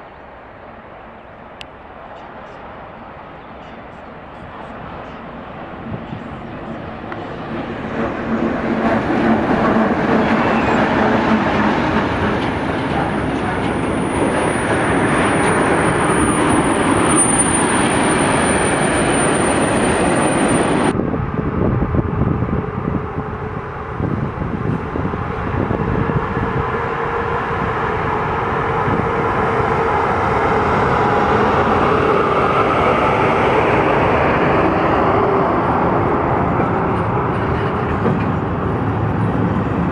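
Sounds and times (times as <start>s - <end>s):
train running past: 0.0s - 39.9s.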